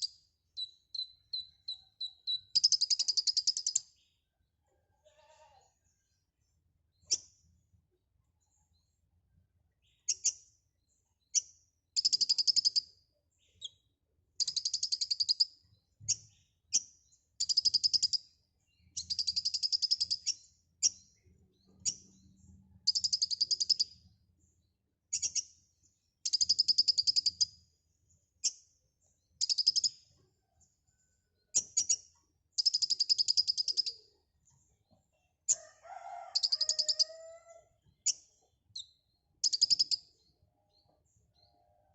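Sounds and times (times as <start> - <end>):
sharp bird chips: 36.4 - 37.1, 39.4 - 40.0.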